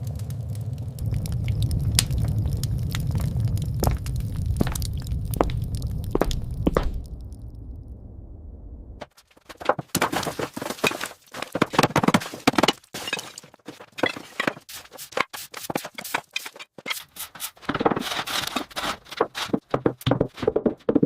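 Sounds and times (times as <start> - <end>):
clatter of knocks and scrapes: 9.0 - 21.0.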